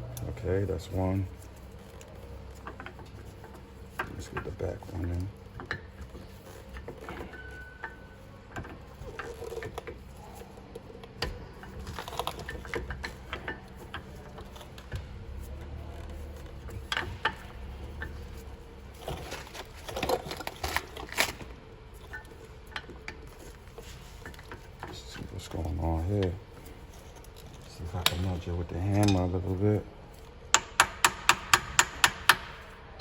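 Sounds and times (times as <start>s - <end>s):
metal clicks and taps: 30.5s - 32.7s.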